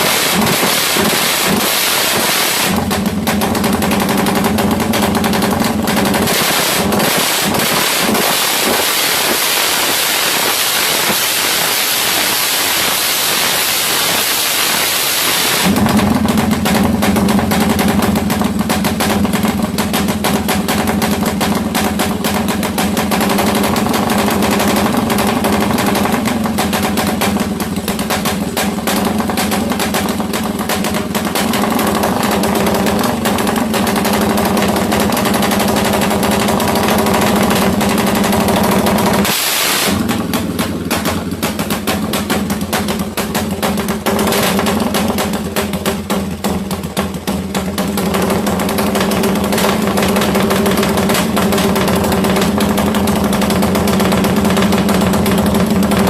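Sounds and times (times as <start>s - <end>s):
single-cylinder engine running: 0.0s - 56.0s.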